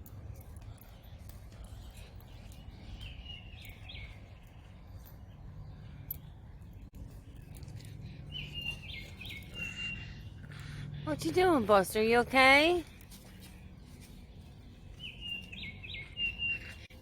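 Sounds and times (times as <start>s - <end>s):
songbird whistling: 2.5s - 4.5s, 8.3s - 10.3s, 15.0s - 16.9s.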